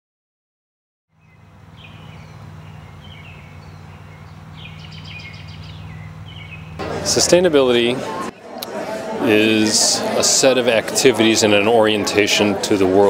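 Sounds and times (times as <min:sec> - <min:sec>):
bird trill: 0:01.2 - 0:06.8
steady low hum: 0:01.2 - 0:08.4
birds chirping: 0:01.2 - 0:10.0.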